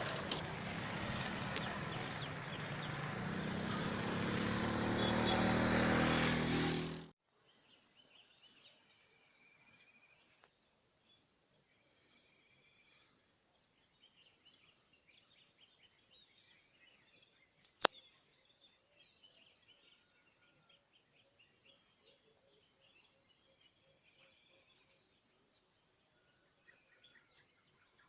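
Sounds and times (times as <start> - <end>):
birds chirping and trilling: 0.0 - 7.0.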